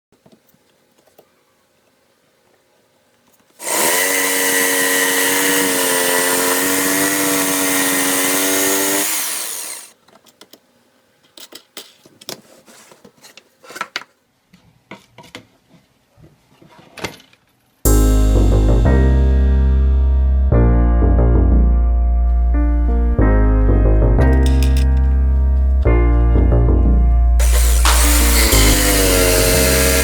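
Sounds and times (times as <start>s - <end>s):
electric jigsaw running: 3.6s - 9.9s, 24.4s - 25.2s, 27.4s - 30.0s.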